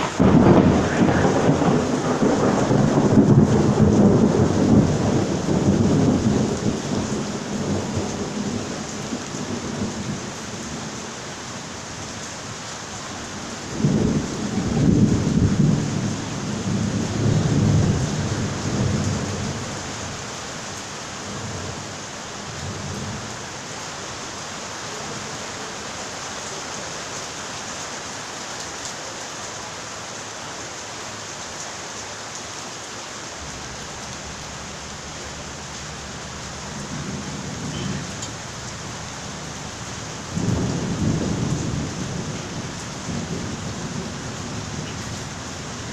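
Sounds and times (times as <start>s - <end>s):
rolling thunder: 0.0s - 10.9s, 13.4s - 20.2s, 33.4s - 45.9s
steady rain: 0.0s - 45.9s.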